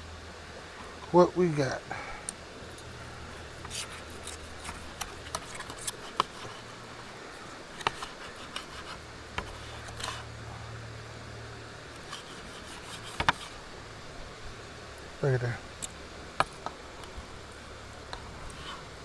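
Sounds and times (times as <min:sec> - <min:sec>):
low steady hum: 0:00.0 - 0:19.0
utensils clicking and scraping: 0:02.3 - 0:10.4, 0:11.9 - 0:13.8, 0:15.7 - 0:19.0
knife and fork cutting steak: 0:02.8 - 0:06.7, 0:07.8 - 0:10.3.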